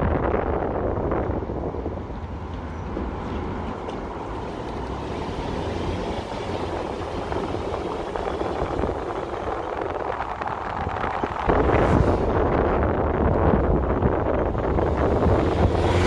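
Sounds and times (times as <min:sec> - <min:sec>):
tyre and road rumble: 0:00.0 - 0:16.0.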